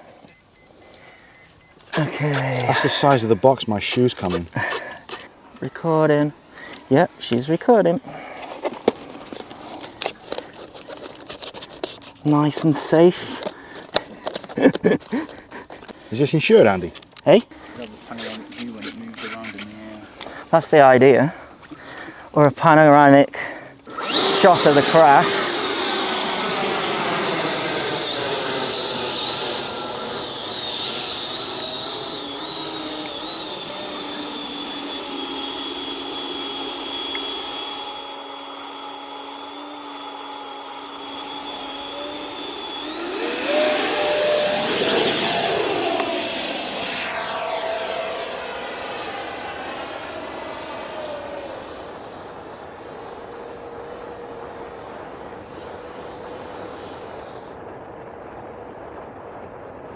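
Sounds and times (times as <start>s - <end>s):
model jet fan whining: 1.2s - 58.9s.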